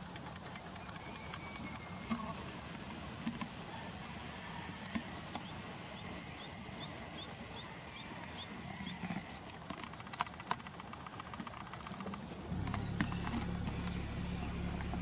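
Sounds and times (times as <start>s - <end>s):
sharp clicks: 9.5s - 15.0s
low background rush: 10.7s - 15.0s.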